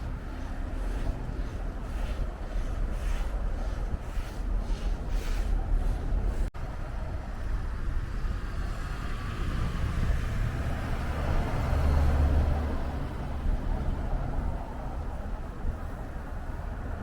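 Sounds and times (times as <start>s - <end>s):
motor vehicle rumbling past: 7.2s - 15.4s.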